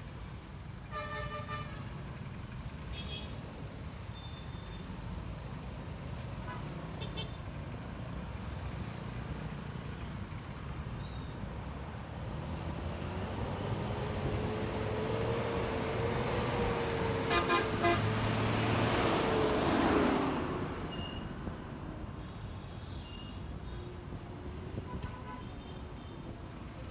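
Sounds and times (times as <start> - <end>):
road rumble: 5.1 - 26.9
passing vehicle whine and tyres: 7.7 - 22.2.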